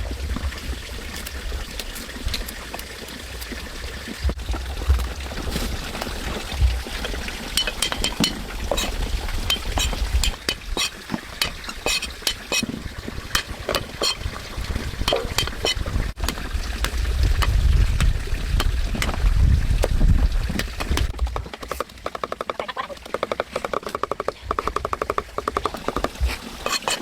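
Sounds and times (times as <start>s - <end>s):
light clinks and clicks: 7.0s - 8.9s.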